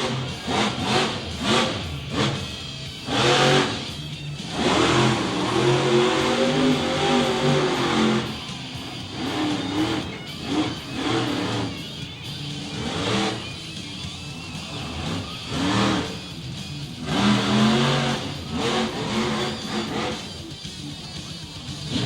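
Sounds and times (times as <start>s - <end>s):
monster truck engine revving: 0.0s - 22.0s
music playing: 0.0s - 22.0s.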